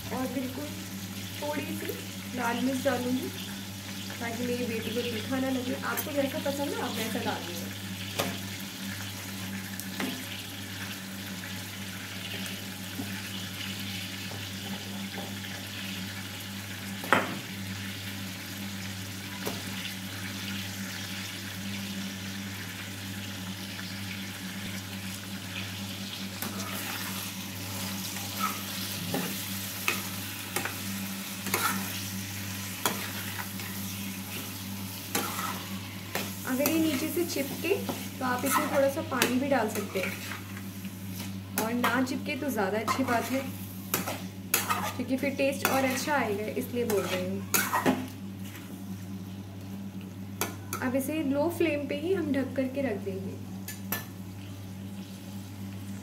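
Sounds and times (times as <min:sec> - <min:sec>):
chicken sizzling in pan: 0:00.0 - 0:51.1
metal spatula scraping pan: 0:31.4 - 0:32.0, 0:35.1 - 0:37.1, 0:38.4 - 0:40.5, 0:42.9 - 0:46.1, 0:46.9 - 0:47.9.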